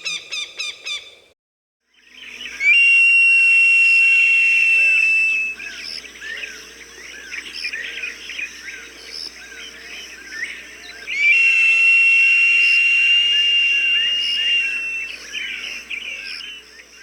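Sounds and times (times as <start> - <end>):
hawk whistling call: 2.6 - 5.7, 11.1 - 16.2.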